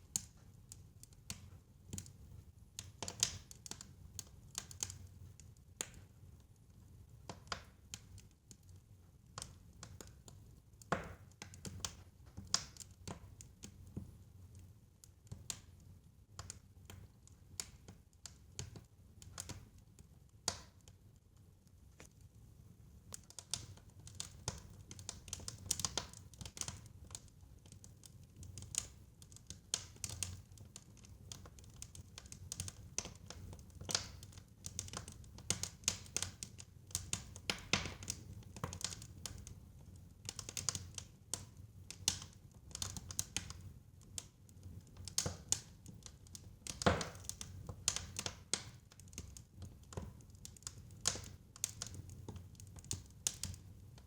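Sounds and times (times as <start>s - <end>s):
fire crackling: 2.8s - 6.7s, 9.3s - 14.6s, 23.0s - 54.0s.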